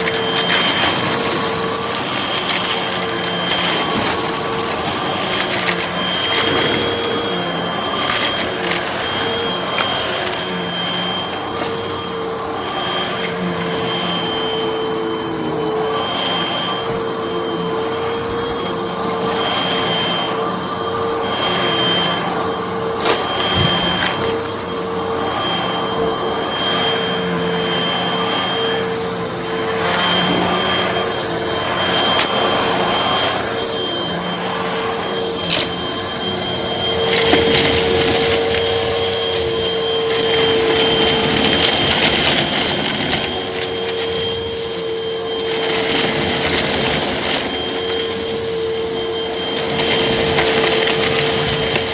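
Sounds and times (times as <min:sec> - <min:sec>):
debris rattling through hose: 0:00.0 - 0:12.0, 0:36.8 - 0:51.9
vacuum cleaner running: 0:00.0 - 0:51.9.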